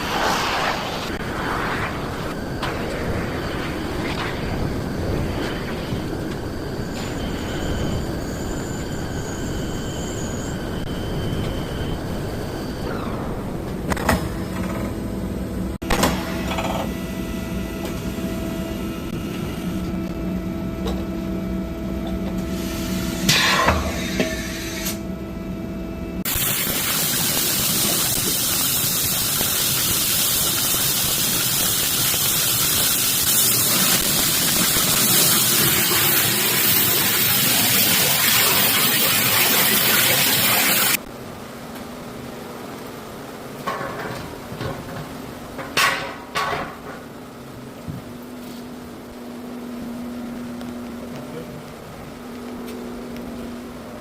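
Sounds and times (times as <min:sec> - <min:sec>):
loud spraying hiss: 0:00.0 - 0:04.1.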